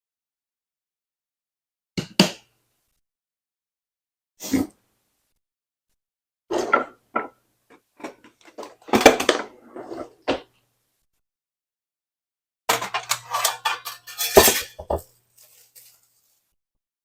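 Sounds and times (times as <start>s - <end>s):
kitchen clattering and knocking: 6.5s - 10.5s, 12.7s - 15.2s.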